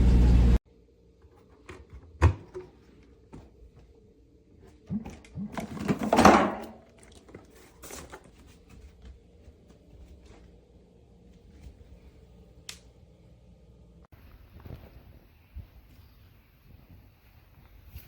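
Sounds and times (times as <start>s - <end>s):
rustling and scraping: 6.9s - 10.6s.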